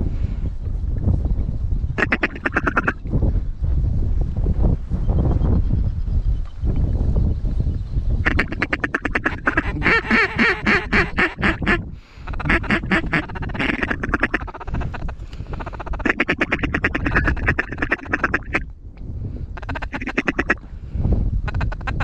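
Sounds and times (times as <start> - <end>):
low wind rumble: 0.0 - 22.0
duck quacking: 2.0 - 3.1, 8.2 - 18.6, 19.6 - 20.6, 21.5 - 22.0.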